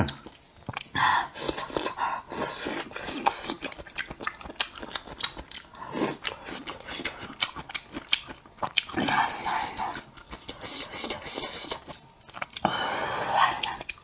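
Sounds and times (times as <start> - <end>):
person chewing noodles: 0.0 - 14.0
wet mouth clicks and smacks: 2.8 - 9.2, 13.6 - 14.0.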